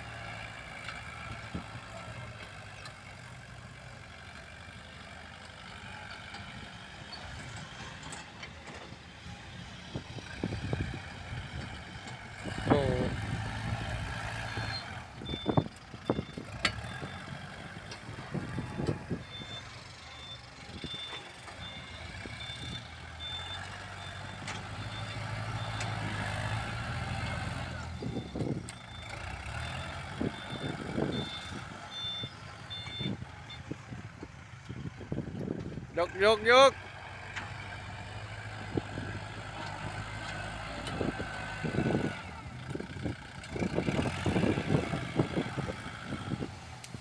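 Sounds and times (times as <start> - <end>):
diesel engine rumble: 0.0 - 47.0
clunks: 13.8 - 19.6
reversing alarm beeping: 14.1 - 29.1, 29.7 - 33.6.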